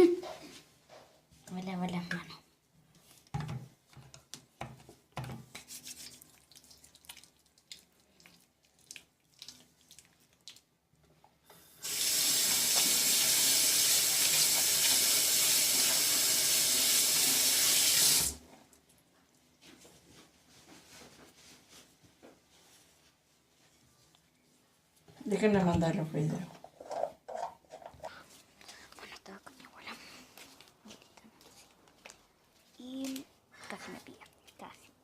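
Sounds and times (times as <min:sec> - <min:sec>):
faint knocks and handling: 0:02.9 - 0:06.0
water tap running into sink: 0:11.7 - 0:18.4.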